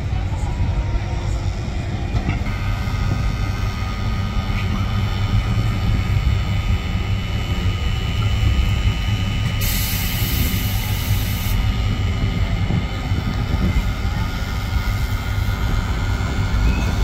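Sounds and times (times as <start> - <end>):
electric train rumbling past: 0.0 - 17.0
thin whine: 0.0 - 17.0
loud hiss: 9.5 - 11.7.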